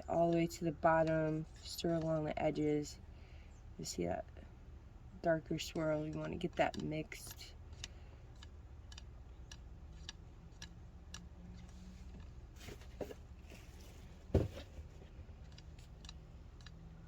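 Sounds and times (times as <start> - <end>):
thump: 14.3 - 14.7.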